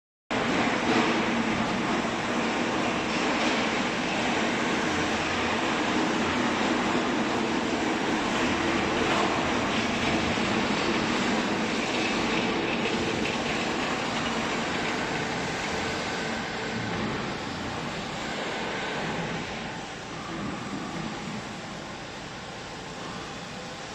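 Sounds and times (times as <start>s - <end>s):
baler machinery running: 0.3s - 23.9s.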